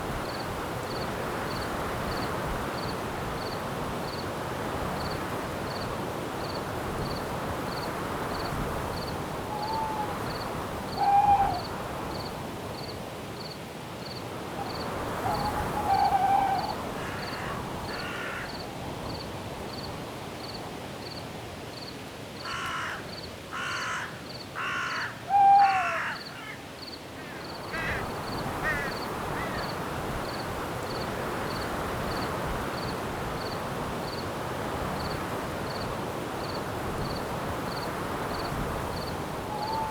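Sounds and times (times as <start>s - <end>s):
wind-like hiss: 0.0s - 39.9s
insect chirping: 6.4s - 21.2s, 36.4s - 39.9s.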